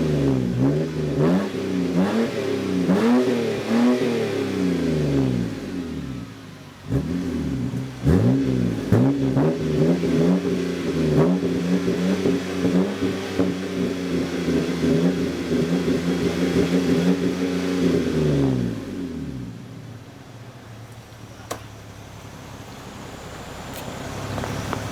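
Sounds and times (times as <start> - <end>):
car engine revving: 0.0 - 19.9.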